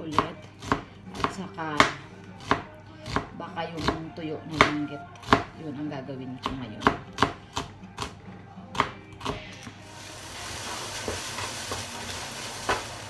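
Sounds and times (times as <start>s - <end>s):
knife chopping on cutting board: 0.0s - 5.5s, 6.4s - 9.7s
food sizzling in a pan: 9.8s - 13.0s.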